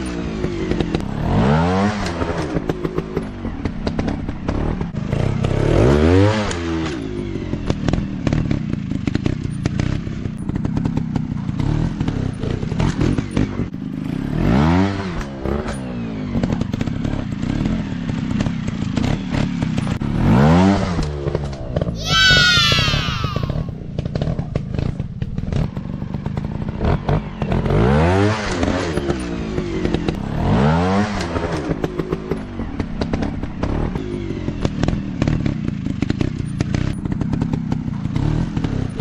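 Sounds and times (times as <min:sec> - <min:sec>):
dirt bike engines revving: 0:21.9 - 0:24.2.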